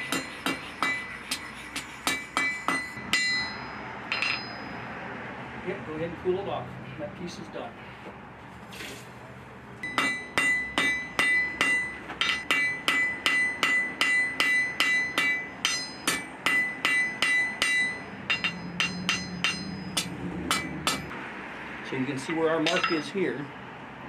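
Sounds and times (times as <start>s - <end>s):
hammer striking steel on anvil: 0.0s - 4.9s, 9.8s - 21.1s, 22.6s - 23.3s.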